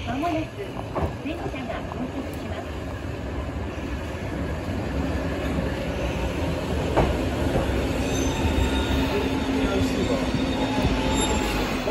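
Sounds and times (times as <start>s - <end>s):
train rumbling along platform: 0.0s - 11.9s
high wheel squeal: 7.7s - 11.9s.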